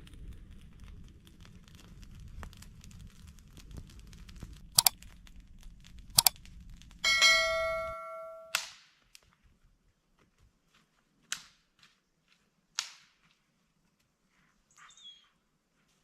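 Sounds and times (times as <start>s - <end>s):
sharp clicks: 4.8s - 5.0s, 6.2s - 6.4s
metal object ringing: 7.0s - 8.6s.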